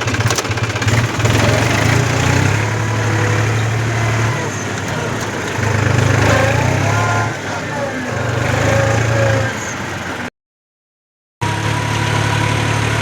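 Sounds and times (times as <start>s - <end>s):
tractor diesel engine running: 0.0s - 10.3s.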